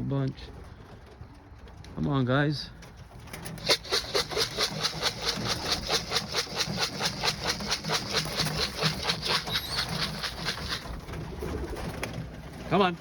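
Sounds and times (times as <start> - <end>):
feed rattling in a container: 3.1 - 13.0.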